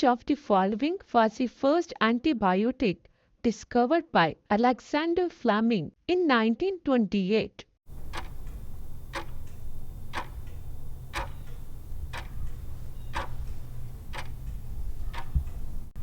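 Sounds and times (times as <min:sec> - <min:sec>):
clock ticking: 0:07.9 - 0:16.0
steady low hum: 0:07.9 - 0:16.0.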